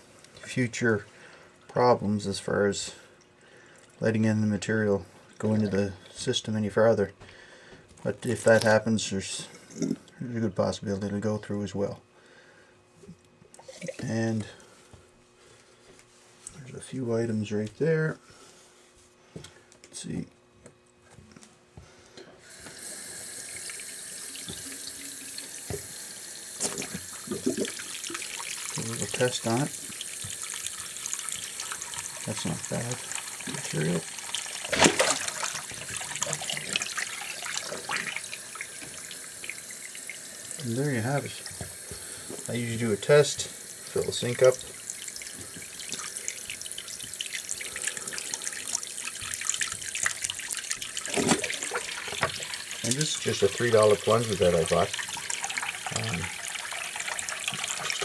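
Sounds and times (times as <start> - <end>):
faucet running water into sink: 22.5 - 58.0.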